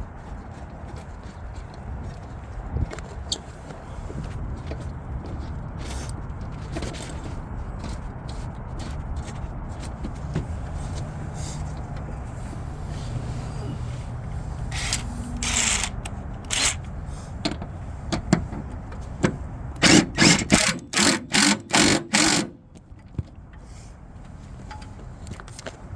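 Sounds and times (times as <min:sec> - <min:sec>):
power drill bursts: 0:14.7 - 0:16.8, 0:19.8 - 0:22.6.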